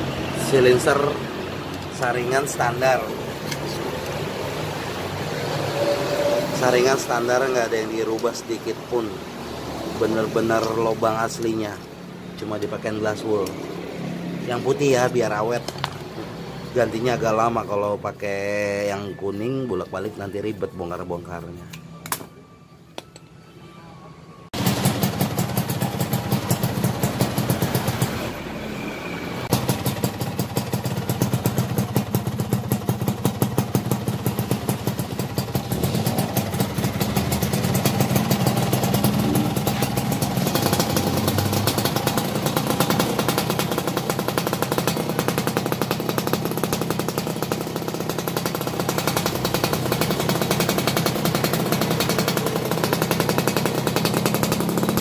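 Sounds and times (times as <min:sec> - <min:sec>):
two-stroke engine exhaust pulses: 0:24.6 - 0:28.5, 0:29.4 - 0:55.0.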